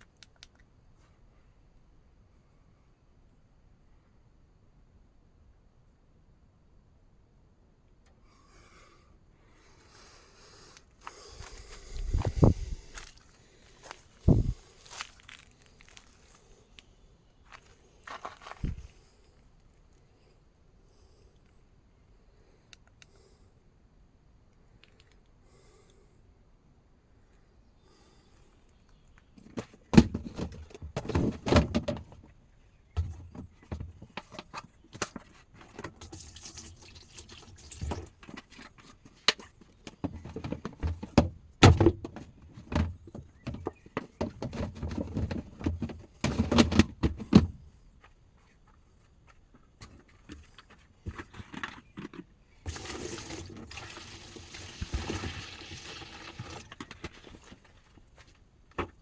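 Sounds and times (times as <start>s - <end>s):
steady hissing like running water: 52.7s - 57.5s.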